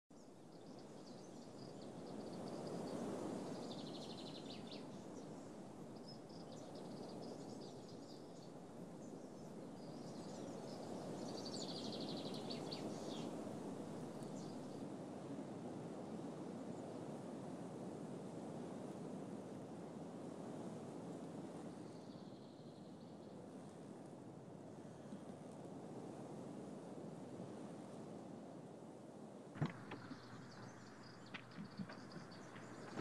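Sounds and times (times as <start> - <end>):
small birds chirping: 0.2 - 14.8, 29.6 - 33.0.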